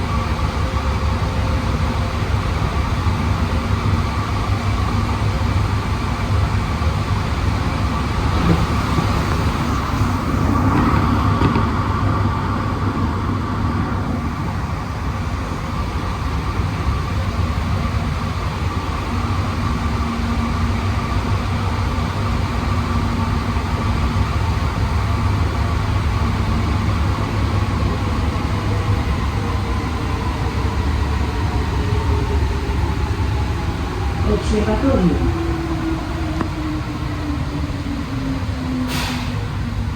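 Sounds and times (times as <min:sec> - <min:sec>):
metro train rumble: 0:00.0 - 0:39.9.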